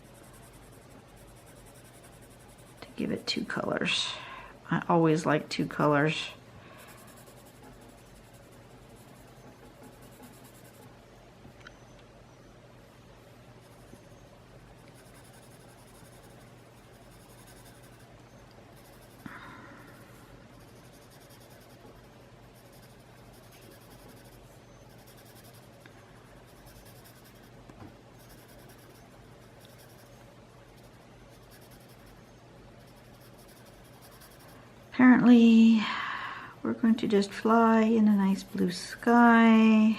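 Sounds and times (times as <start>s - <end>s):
pencil scratching on paper: 0.0s - 3.7s, 6.8s - 10.9s, 14.8s - 18.1s, 18.8s - 19.2s, 19.9s - 27.6s, 28.2s - 32.2s, 32.8s - 34.6s, 37.8s - 39.2s.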